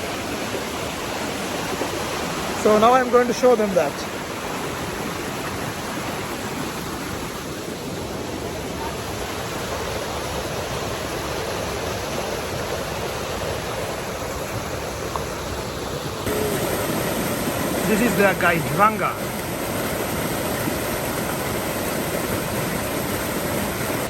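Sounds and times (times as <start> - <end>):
water rushing from waterfall: 0.0 - 24.0.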